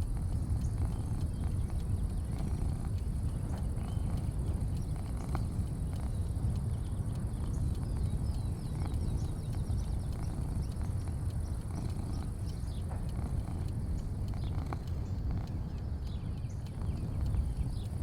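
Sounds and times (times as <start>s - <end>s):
bird chirping: 0.0s - 18.0s
faint high-pitched hum: 0.0s - 18.0s
light clicks: 0.0s - 18.0s
low rumble: 0.0s - 18.0s.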